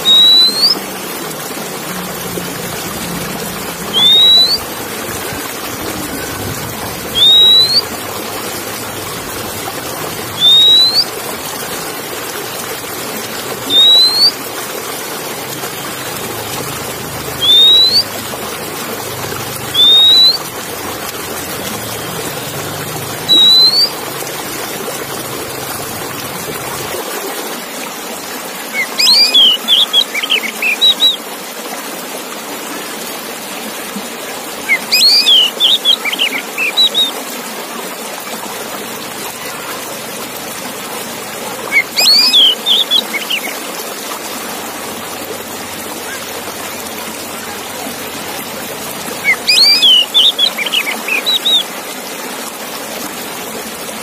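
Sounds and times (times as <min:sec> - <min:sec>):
bird chirps: 0:00.0 - 0:00.8, 0:03.9 - 0:04.6, 0:07.1 - 0:07.9, 0:10.4 - 0:11.1, 0:13.6 - 0:14.3, 0:17.4 - 0:18.2, 0:19.7 - 0:20.5, 0:23.1 - 0:24.0, 0:34.7 - 0:37.1, 0:41.7 - 0:43.6, 0:49.2 - 0:51.6
bird whistling rising note: 0:00.0 - 0:00.8, 0:03.8 - 0:04.7, 0:07.1 - 0:08.0, 0:10.4 - 0:11.1, 0:13.6 - 0:14.3, 0:17.4 - 0:18.2, 0:19.7 - 0:20.5, 0:23.2 - 0:24.0.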